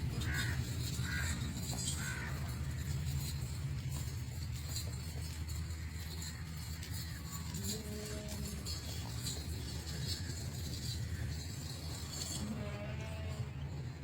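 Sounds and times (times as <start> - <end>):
bird cawing: 0.2 - 2.9.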